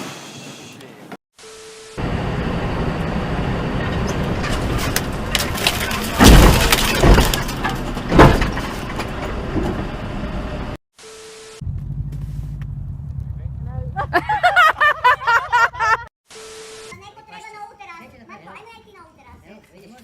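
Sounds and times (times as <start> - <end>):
road and engine noise: 1.8 - 19.4
vehicle crash: 2.2 - 10.2
glass shattering and debris: 4.7 - 9.3.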